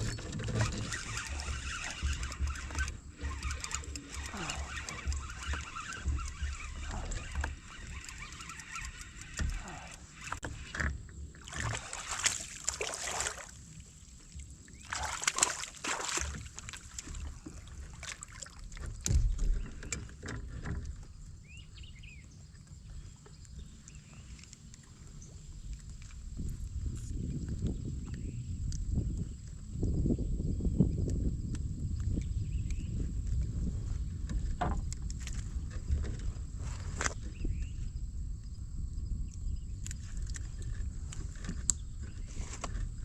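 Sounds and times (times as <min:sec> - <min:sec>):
water splashing beside kayak: 0:00.0 - 0:21.2
bumps and knocks on hull: 0:15.0 - 0:21.1, 0:34.2 - 0:34.9.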